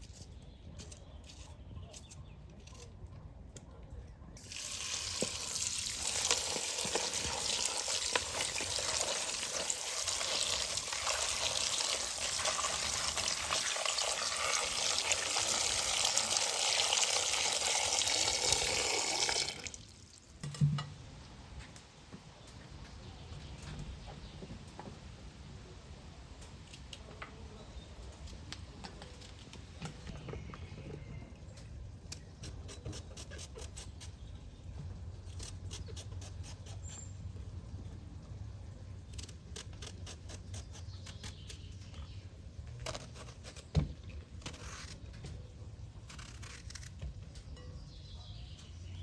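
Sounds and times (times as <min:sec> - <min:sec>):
water running in a stream: 0:04.4 - 0:20.4.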